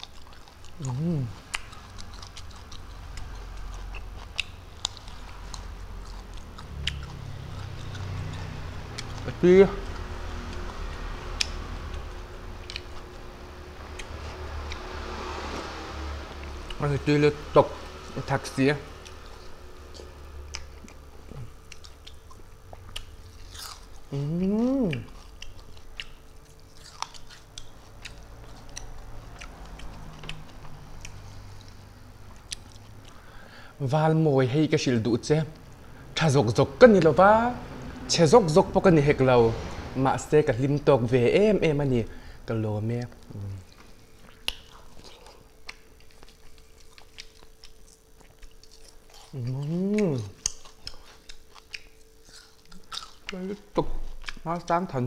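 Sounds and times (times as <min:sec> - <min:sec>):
person chewing food: 0:00.0 - 0:16.8, 0:18.9 - 0:33.8, 0:43.0 - 0:54.5
person humming: 0:00.8 - 0:01.4, 0:24.1 - 0:25.2, 0:43.3 - 0:43.7, 0:49.3 - 0:50.4
wet mouth clicks and smacks: 0:44.2 - 0:48.8.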